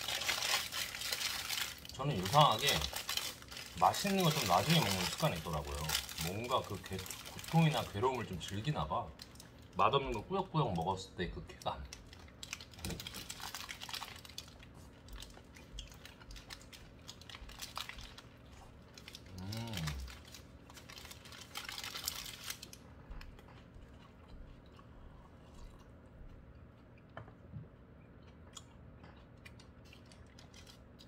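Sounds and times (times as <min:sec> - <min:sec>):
paper wrapper crinkling: 0:00.0 - 0:10.1, 0:11.9 - 0:22.8, 0:30.2 - 0:31.0
person humming mmm: 0:19.3 - 0:20.1.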